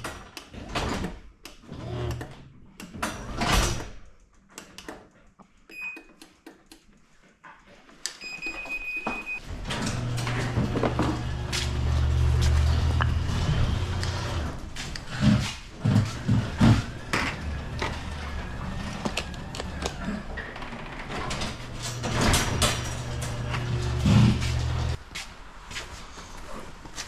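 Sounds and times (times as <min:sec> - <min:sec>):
garage door opener humming: 0:09.4 - 0:25.0.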